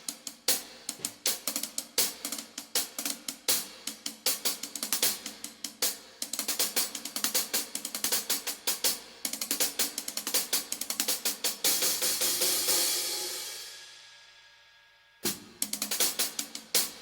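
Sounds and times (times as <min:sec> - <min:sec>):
drums: 0:00.0 - 0:17.0
cymbal strokes: 0:12.0 - 0:15.6
ringing cymbal wash: 0:12.3 - 0:15.6.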